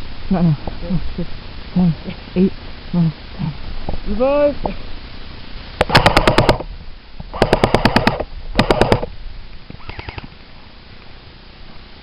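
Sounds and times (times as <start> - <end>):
airsoft rifle full-auto bursts: 5.8 - 6.6, 7.3 - 9.1, 9.8 - 10.3.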